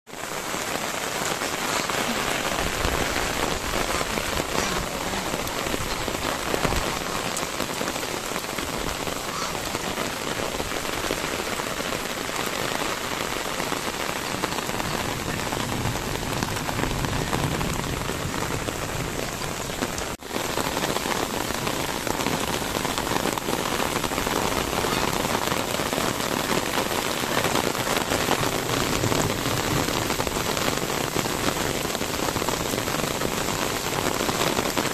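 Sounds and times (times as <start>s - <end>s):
rain falling on grass and paving: 0.1s - 34.9s.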